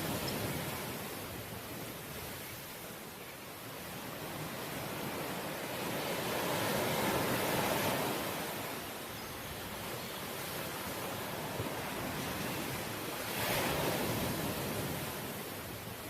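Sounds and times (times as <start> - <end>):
ocean waves breaking: 3.9 - 9.0, 9.7 - 15.9.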